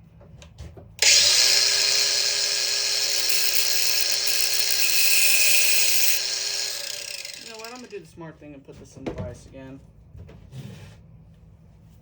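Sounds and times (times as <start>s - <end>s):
power tool motor whining: 1.0s - 7.9s.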